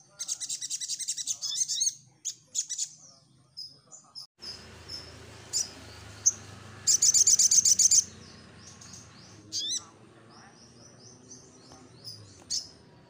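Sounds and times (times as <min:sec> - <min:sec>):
fast bird trill: 0:00.0 - 0:03.0, 0:04.4 - 0:09.9
bird singing high chirps: 0:00.0 - 0:13.0.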